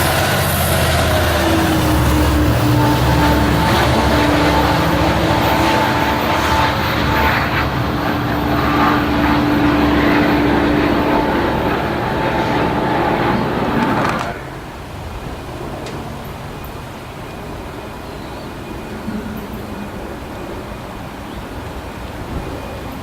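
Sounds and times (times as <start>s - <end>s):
steady whine: 0.0s - 22.3s
diesel locomotive engine rumble: 0.0s - 23.0s
rail noise: 0.0s - 23.0s.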